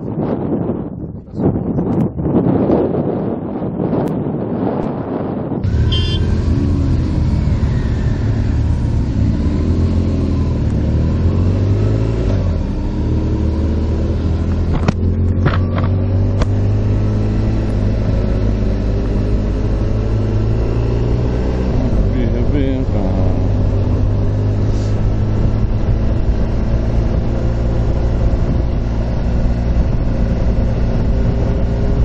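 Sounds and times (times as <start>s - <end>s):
motorcycle engine running: 5.6s - 11.6s, 12.6s - 32.0s.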